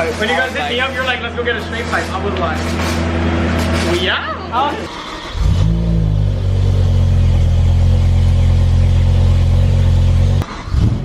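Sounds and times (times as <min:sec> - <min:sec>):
car engine droning: 0:04.7 - 0:11.0.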